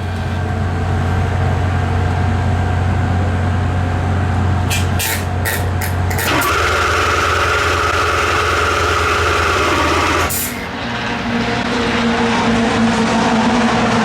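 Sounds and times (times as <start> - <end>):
engine humming in background: 0.0 - 14.0
starter motor cranking: 5.6 - 10.7.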